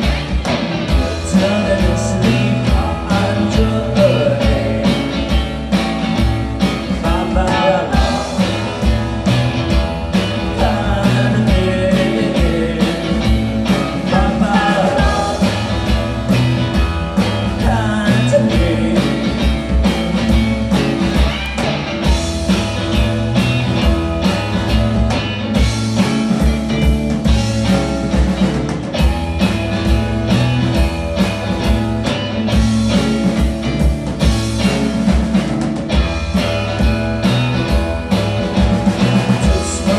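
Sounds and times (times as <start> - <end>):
rock band playing live: 0.0 - 39.9
person singing: 0.9 - 5.3, 6.9 - 8.7, 10.5 - 13.4, 14.0 - 15.7, 17.6 - 19.5, 39.1 - 39.9.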